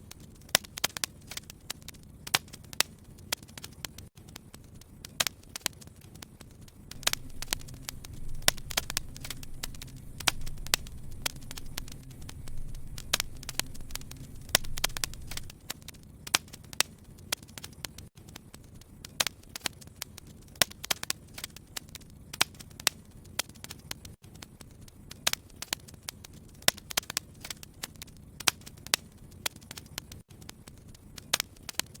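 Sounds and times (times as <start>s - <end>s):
sharp pops and snaps: 0.0s - 32.0s
wood fire crackling: 0.0s - 32.0s
low rumble: 6.9s - 15.5s.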